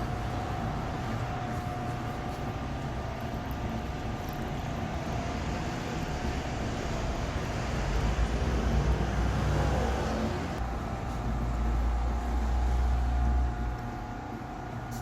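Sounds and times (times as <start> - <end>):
faint steady whine: 0.0 - 9.0
car engine humming: 0.0 - 14.5.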